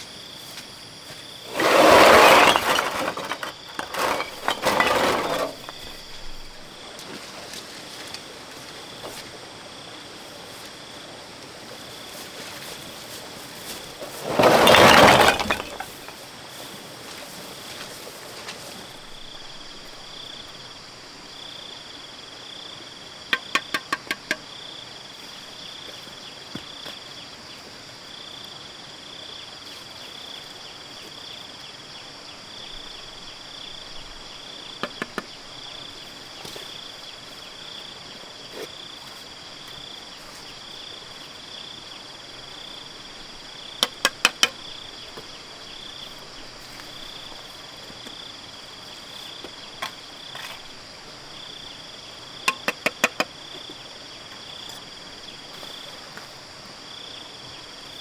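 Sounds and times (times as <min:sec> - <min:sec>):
insects chirping: 0:00.0 - 0:58.0.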